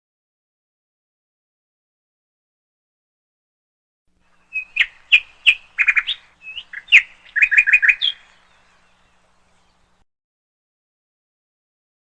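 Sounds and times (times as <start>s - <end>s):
small bird chirping: 4.2s - 10.0s.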